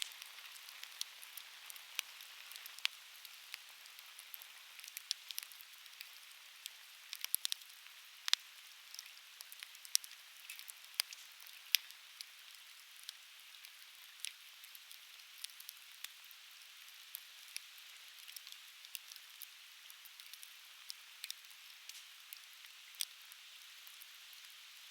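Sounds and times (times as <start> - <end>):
firewood crackling and popping: 0.0 - 12.3, 18.2 - 23.2.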